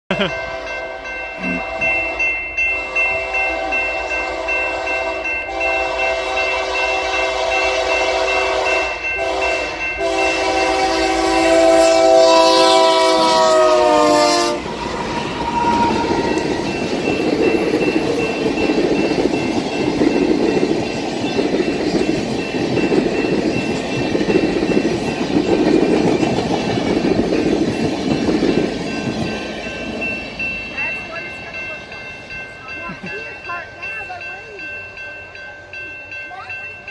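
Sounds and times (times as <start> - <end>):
crossing bell ringing: 0.1 - 36.9
train wheels rumbling on rails: 0.2 - 36.9
locomotive air horn blowing: 0.5 - 16.5.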